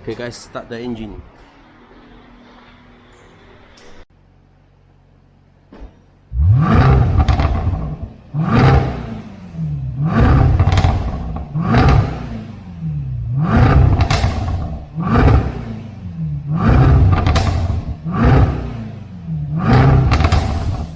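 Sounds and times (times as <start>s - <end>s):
car engine starting and revving: 6.3s - 20.9s.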